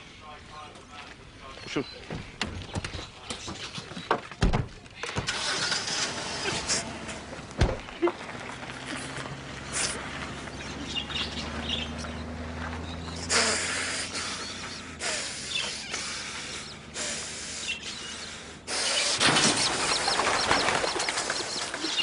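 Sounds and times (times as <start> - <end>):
small birds chirping: 0.0 - 5.1, 7.8 - 22.0.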